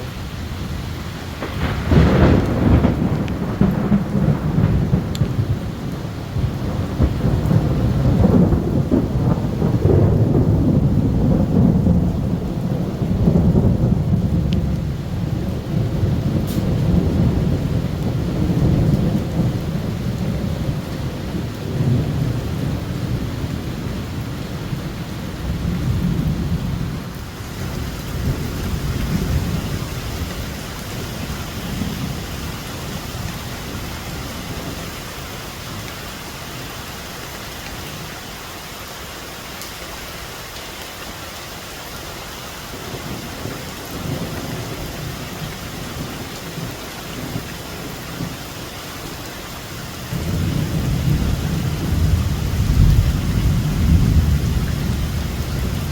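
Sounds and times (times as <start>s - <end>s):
deep thunder rumbling: 0.0s - 35.4s, 50.1s - 55.9s
heavy rain pouring: 0.0s - 55.9s.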